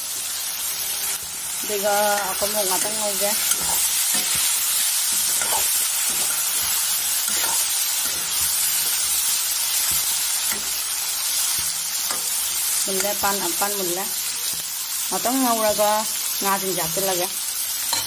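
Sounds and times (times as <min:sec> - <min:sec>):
fish frying in oil: 0:00.0 - 0:18.0
metal spatula scraping pan: 0:02.2 - 0:10.9.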